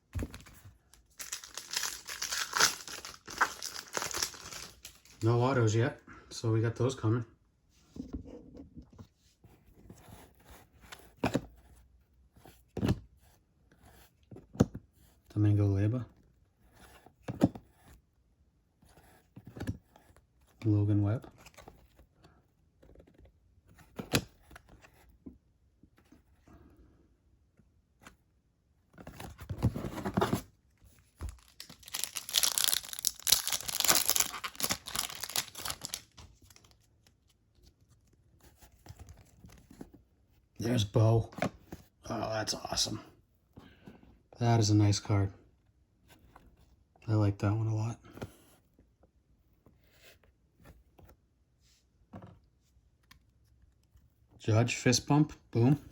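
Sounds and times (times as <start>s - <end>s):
cards rustling: 0.1s - 5.4s, 31.0s - 38.2s
wrapper tearing and crinkling: 1.1s - 5.2s, 31.3s - 36.8s.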